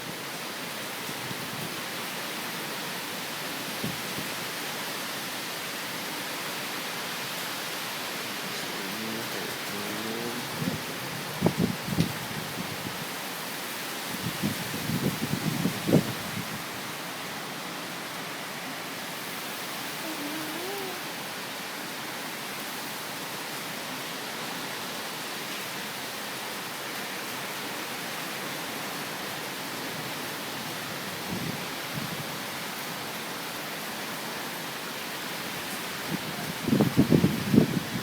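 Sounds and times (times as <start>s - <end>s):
wind and heavy rain rushing: 0.0s - 38.0s
wind gusts buffeting microphone: 10.4s - 13.1s, 14.1s - 16.7s, 36.0s - 38.0s.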